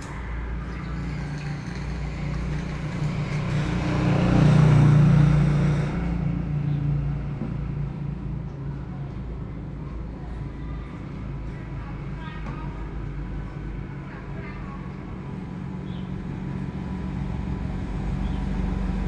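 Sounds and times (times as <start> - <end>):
vehicle passing close: 0.0 - 8.2
low traffic rumble: 0.0 - 19.0.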